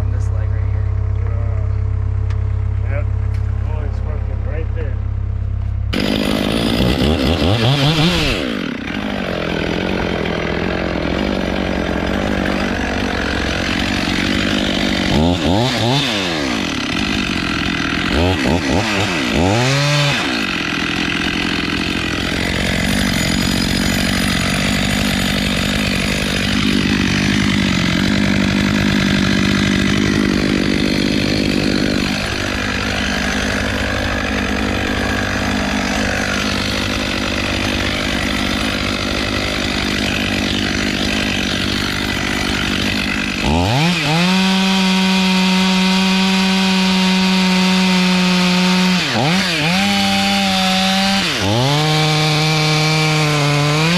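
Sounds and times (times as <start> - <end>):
chainsaw cutting wood: 5.9 - 53.9.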